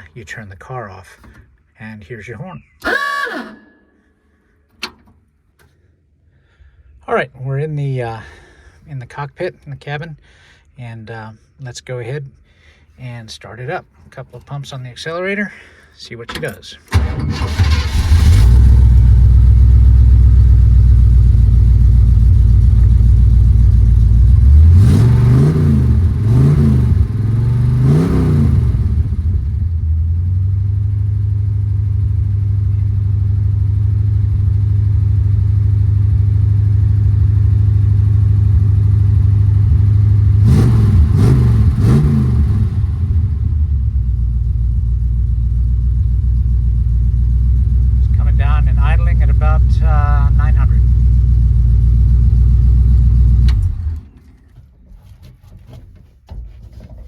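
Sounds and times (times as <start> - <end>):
car engine idling and revving: 16.9 - 54.2.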